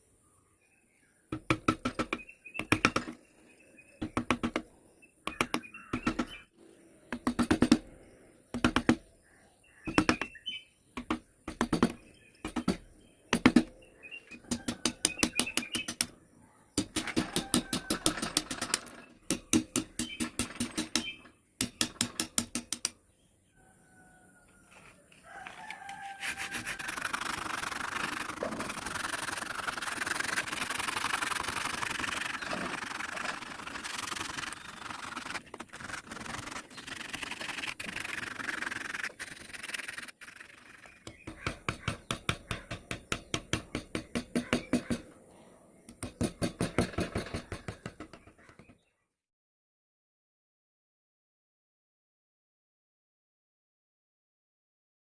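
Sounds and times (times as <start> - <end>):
hand tool rasping wood: 16.8 - 22.9, 25.9 - 45.0
sanding wood: 26.0 - 43.3.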